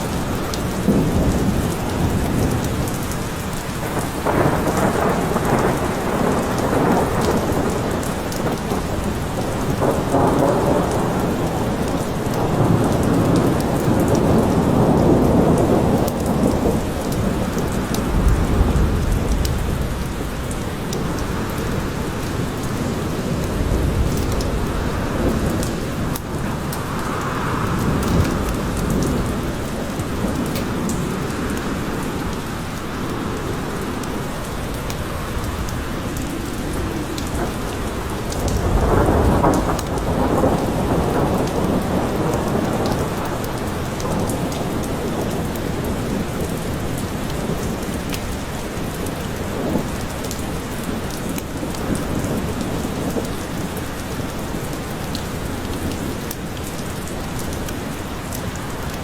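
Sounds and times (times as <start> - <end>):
low rumble of thunder: 0.0 - 59.0
steady rain in forest: 0.0 - 59.0.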